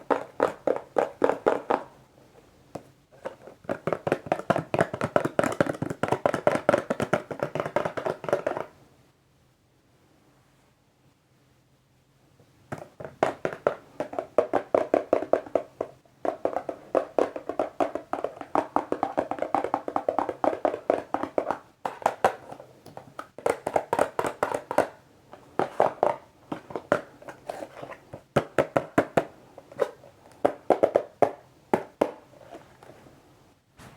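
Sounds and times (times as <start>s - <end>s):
fingers tapping on a box: 0.0s - 1.9s, 2.8s - 8.7s, 12.7s - 25.0s.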